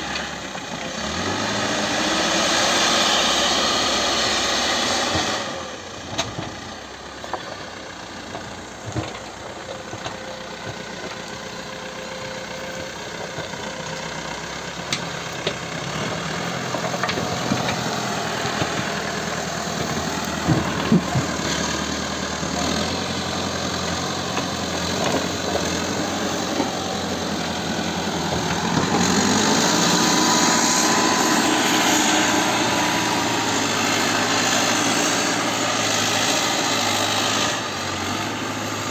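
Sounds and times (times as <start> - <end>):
backhoe diesel engine running: 0.0 - 38.9
knocks and clanks: 19.8 - 21.7.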